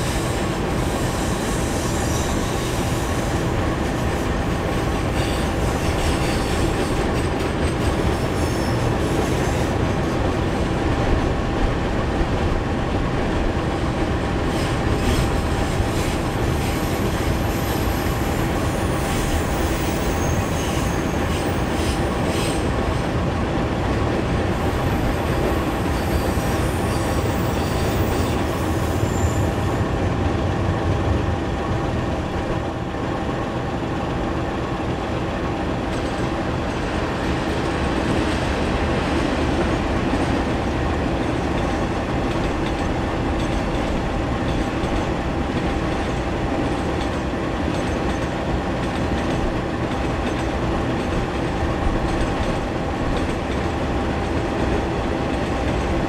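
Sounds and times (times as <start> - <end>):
freight train rolling on rails: 0.0 - 56.0
high wheel squeals: 16.9 - 22.7, 24.8 - 29.8.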